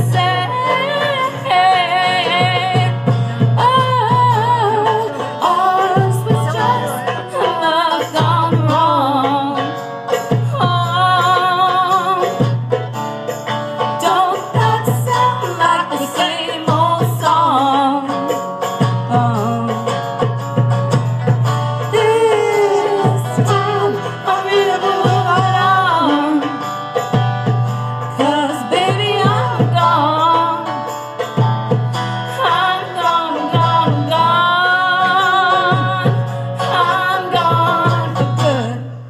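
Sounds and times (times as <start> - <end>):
band playing country song: 0.0 - 39.0.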